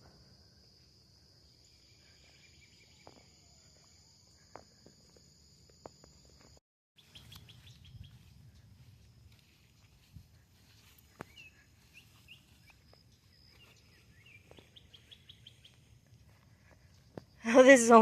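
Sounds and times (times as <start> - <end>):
sharp bird chirps: 7.0 - 8.9, 10.6 - 16.0.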